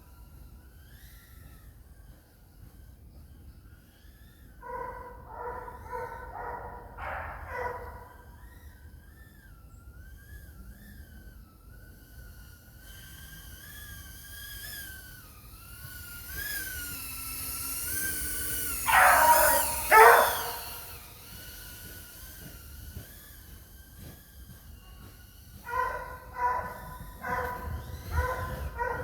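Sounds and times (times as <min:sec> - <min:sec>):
drone motors whining: 0:00.0 - 0:29.0
dog barking loudly: 0:04.6 - 0:08.2, 0:18.9 - 0:20.9, 0:25.7 - 0:29.0.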